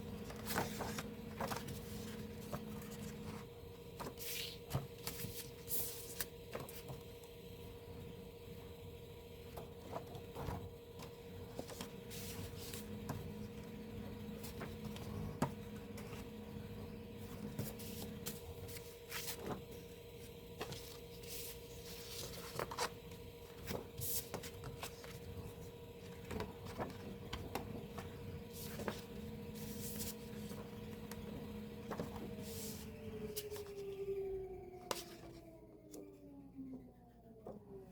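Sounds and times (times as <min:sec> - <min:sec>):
faint hum: 0:00.0 - 0:37.9
paper and plastic rustling: 0:00.2 - 0:07.0, 0:20.6 - 0:23.0.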